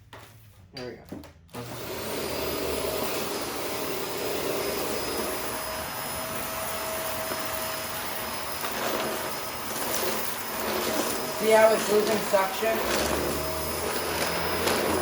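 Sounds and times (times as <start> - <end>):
vacuum cleaner running: 1.5 - 15.0.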